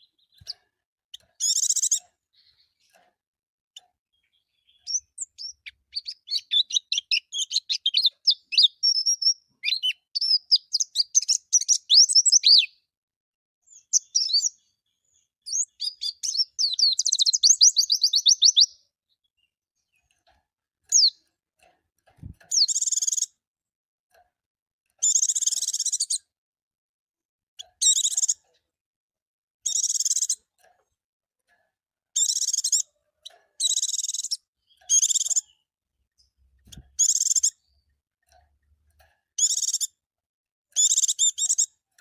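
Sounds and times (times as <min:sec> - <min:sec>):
bird twittering song: 0:00.0 - 0:03.0, 0:03.8 - 0:12.9, 0:13.6 - 0:20.2, 0:20.9 - 0:21.3, 0:22.2 - 0:23.4, 0:25.0 - 0:26.3, 0:27.6 - 0:28.6, 0:29.6 - 0:30.5, 0:32.2 - 0:38.0, 0:39.4 - 0:40.0, 0:40.7 - 0:41.8.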